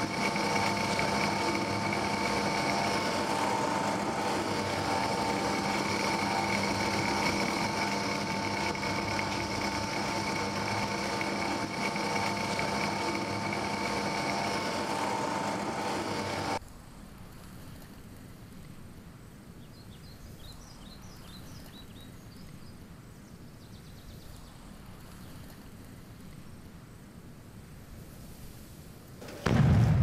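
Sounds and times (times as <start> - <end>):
kneading machine whine: 0.0 - 16.6
faint outdoor background: 0.0 - 30.0.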